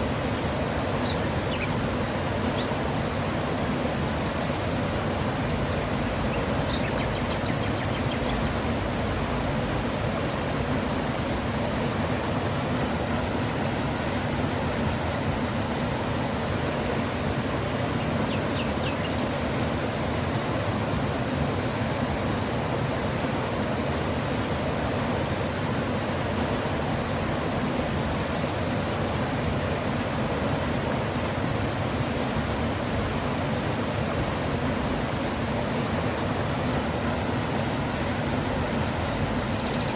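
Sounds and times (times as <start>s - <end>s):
faint insect chirping: 0.0s - 19.4s, 21.9s - 26.1s, 26.8s - 39.9s
river water rushing: 0.0s - 39.9s.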